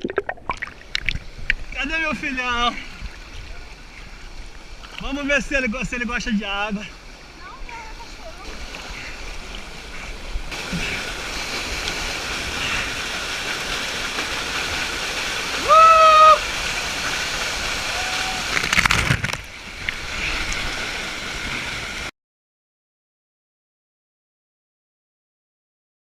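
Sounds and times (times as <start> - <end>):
water splashing: 0.0 - 22.1
waterfall rushing: 5.2 - 22.1
person crying out: 15.6 - 16.4, 17.9 - 18.5.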